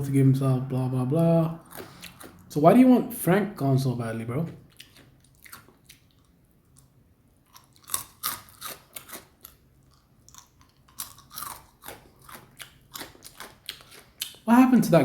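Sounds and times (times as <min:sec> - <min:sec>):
person chewing and smacking food: 0:01.2 - 0:02.5, 0:04.4 - 0:14.5.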